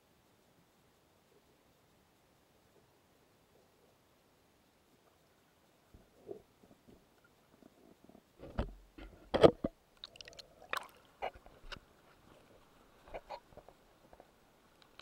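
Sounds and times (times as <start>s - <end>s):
underwater knocks and clicks: 8.4s - 10.1s.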